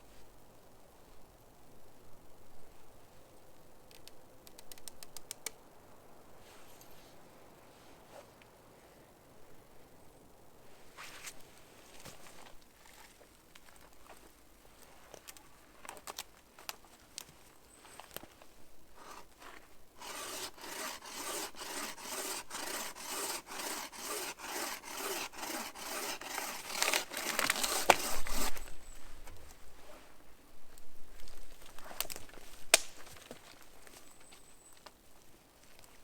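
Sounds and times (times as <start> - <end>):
saw cutting through wood: 20.0 - 28.6.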